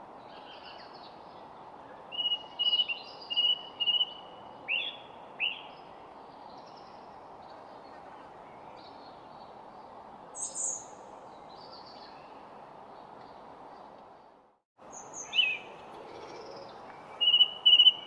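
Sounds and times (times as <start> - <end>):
birds calling and chirping: 14.9 - 18.0.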